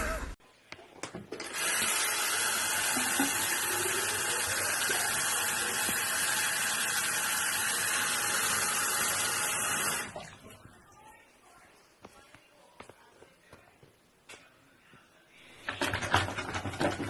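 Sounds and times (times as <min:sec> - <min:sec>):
water running from a tap: 0:01.4 - 0:10.4.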